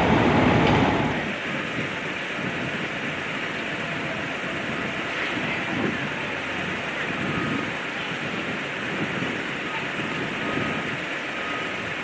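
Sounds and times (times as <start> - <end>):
loud vehicle rumble: 0.0 - 12.0
street noise hiss: 0.0 - 12.0.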